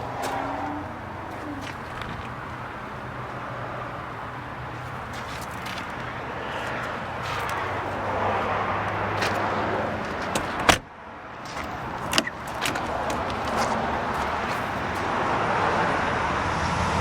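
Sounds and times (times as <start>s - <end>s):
latch click: 9.2s - 10.9s
car door slamming shut: 10.1s - 10.9s.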